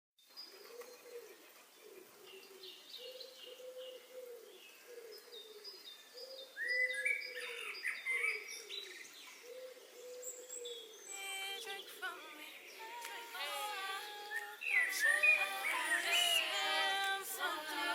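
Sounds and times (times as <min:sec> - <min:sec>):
low cooing bird calls: 0:00.4 - 0:11.2.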